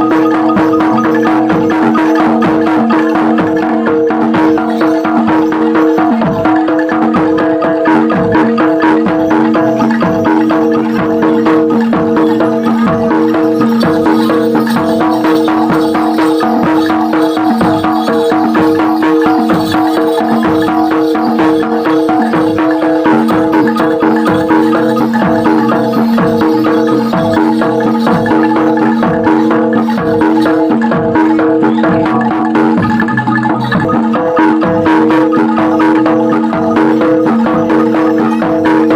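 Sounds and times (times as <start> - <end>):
fast percussion strokes: 0.0 - 38.9
held ensemble tones: 0.0 - 38.9
tuned mallet instruments: 0.0 - 38.9.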